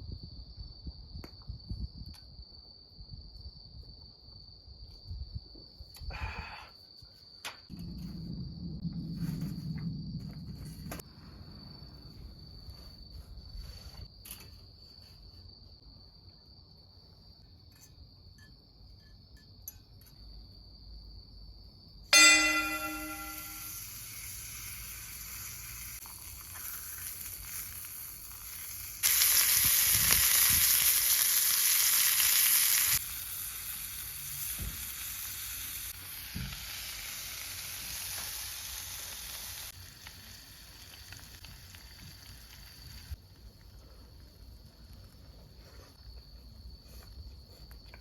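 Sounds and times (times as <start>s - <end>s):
crickets trilling: 0.0s - 48.0s
low knocks and crackles: 7.7s - 12.4s.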